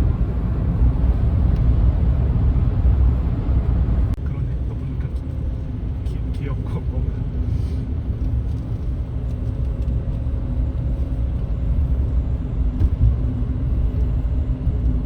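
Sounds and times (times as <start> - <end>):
low rumble of running vehicle: 0.0 - 15.0.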